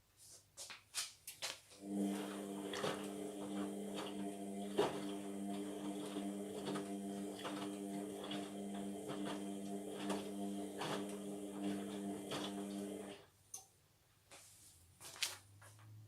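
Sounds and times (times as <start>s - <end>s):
washing machine motor hum: 1.8s - 13.3s.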